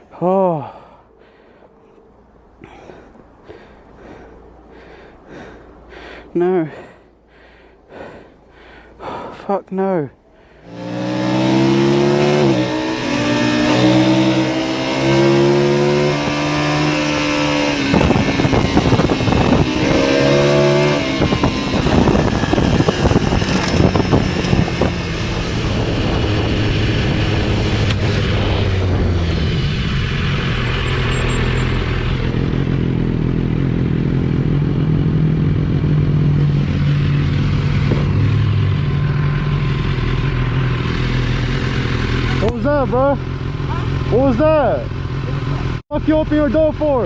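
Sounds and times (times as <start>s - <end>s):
motorcycle engine revving and idling: 10.5s - 47.0s.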